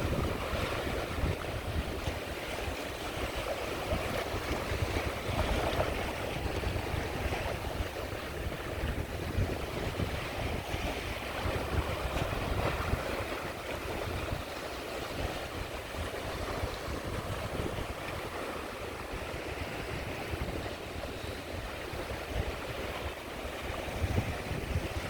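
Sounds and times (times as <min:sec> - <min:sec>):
sea waves washing onto shore: 0:00.0 - 0:25.0
wind buffeting microphone: 0:00.0 - 0:25.0.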